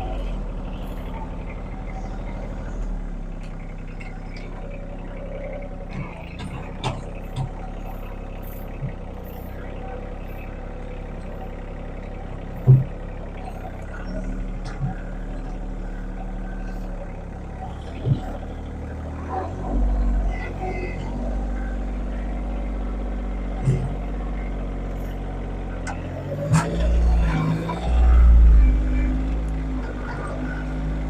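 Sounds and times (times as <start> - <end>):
heavy machinery engine droning: 0.0 - 31.0
machinery clunks and knocks: 12.6 - 13.0.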